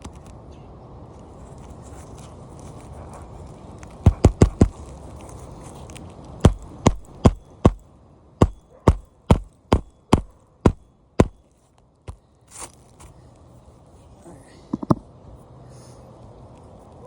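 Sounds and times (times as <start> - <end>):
hammer striking nails: 4.1 - 4.8, 6.4 - 7.8, 8.4 - 11.4.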